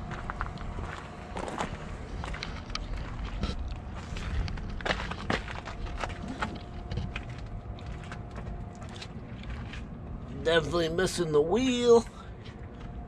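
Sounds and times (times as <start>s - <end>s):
low outdoor rumble: 0.0s - 13.0s
footsteps scuffing: 0.1s - 10.4s.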